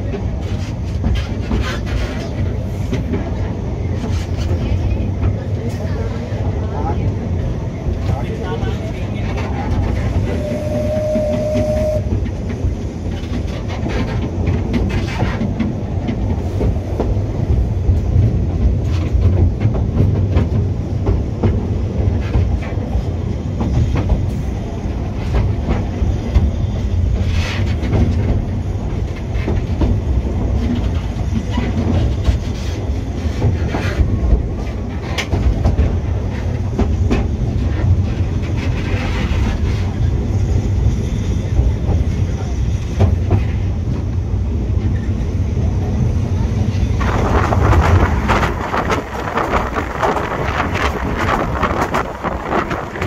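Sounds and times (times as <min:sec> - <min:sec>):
train rumbling: 0:00.0 - 0:53.0
wheels clicking over rail joints: 0:12.0 - 0:24.3, 0:46.7 - 0:53.0.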